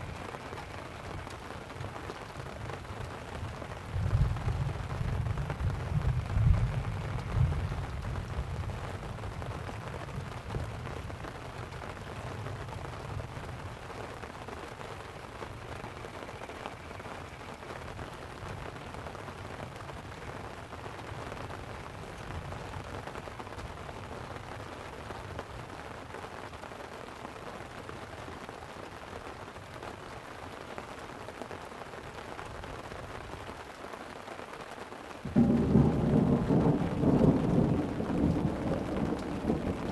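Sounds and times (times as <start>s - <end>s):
light rain on a tent: 0.0s - 39.9s
low rumble of thunder: 2.4s - 14.2s, 35.3s - 39.9s.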